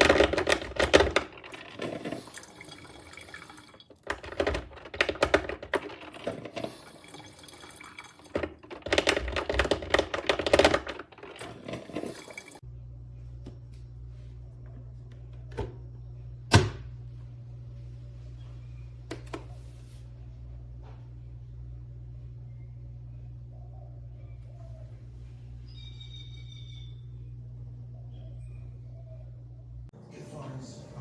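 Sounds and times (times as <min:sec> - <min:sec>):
coffee maker gurgling and sputtering: 0:00.0 - 0:12.6
steady low hum: 0:12.6 - 0:31.0.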